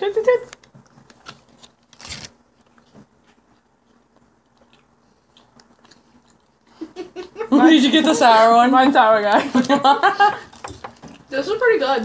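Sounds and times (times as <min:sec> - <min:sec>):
chewing clicks: 0:03.5 - 0:06.6.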